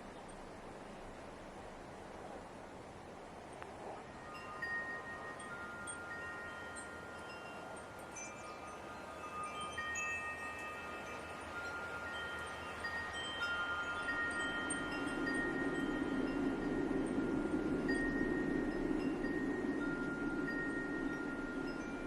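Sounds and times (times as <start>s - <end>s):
light wind hiss: 0.0s - 22.0s
wind chimes ringing: 4.0s - 22.0s.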